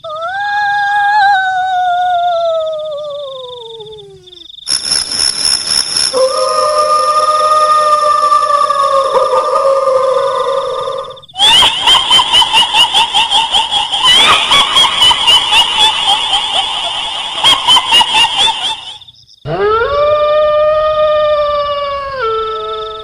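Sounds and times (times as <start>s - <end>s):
high-pitched ghostly cackle: 6.1s - 23.0s
long howl: 6.2s - 12.6s, 19.5s - 23.0s.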